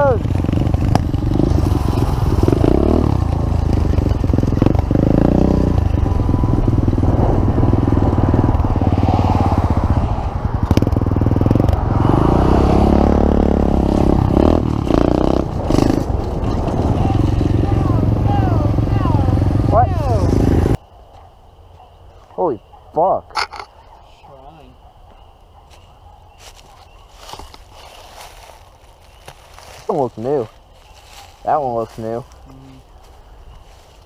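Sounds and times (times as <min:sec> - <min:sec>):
pit bike engine revving: 0:00.0 - 0:20.8.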